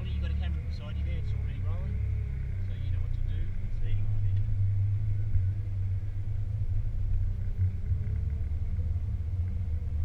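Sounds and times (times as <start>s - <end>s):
car engine rumbling: 0.0s - 10.0s.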